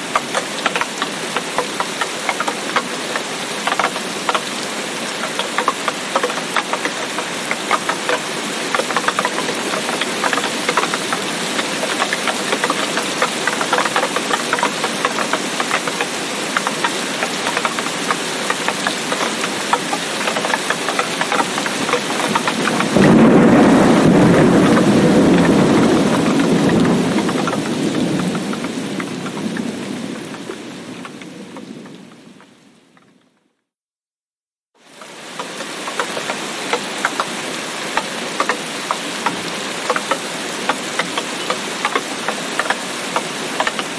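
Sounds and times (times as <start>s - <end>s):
heavy rain patter: 0.0s - 33.2s, 34.8s - 43.9s
thunder rumble: 21.8s - 32.6s.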